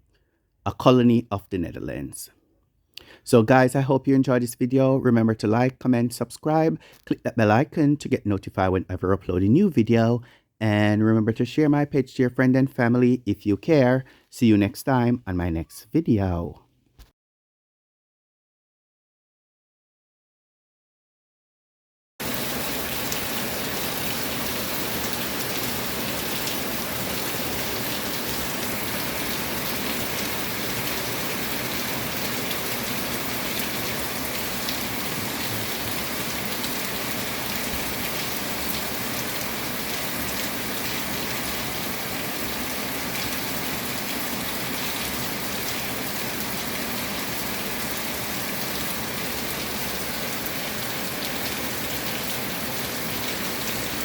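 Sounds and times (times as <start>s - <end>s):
steady rain falling: 22.2s - 54.0s.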